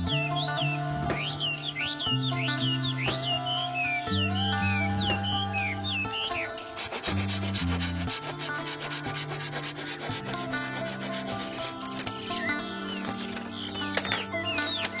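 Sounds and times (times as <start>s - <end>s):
background music with held chords: 0.0s - 15.0s
birds chirping: 0.0s - 15.0s
fast rasping rubbing sound: 6.3s - 15.0s.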